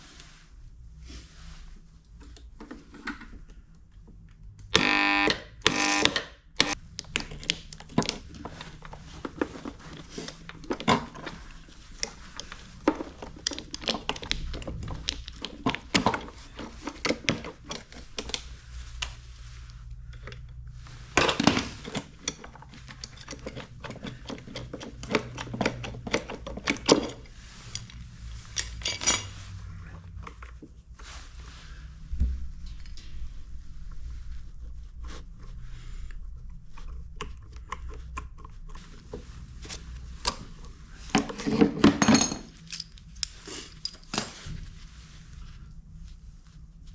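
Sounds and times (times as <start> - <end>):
hands and tools clattering: 20.1 - 30.6, 41.1 - 44.4.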